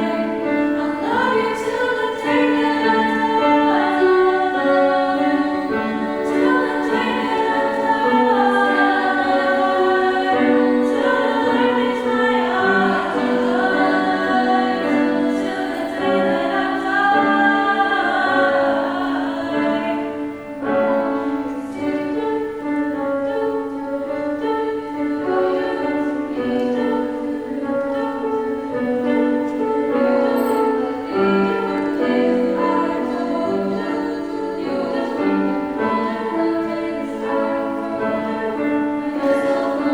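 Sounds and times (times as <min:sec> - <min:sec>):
female voices singing in harmony: 0:00.0 - 0:39.9.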